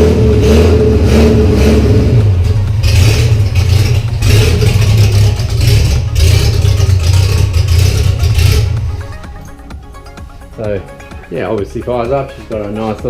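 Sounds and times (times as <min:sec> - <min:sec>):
loud lumpy engine idle: 0:02.2 - 0:09.2.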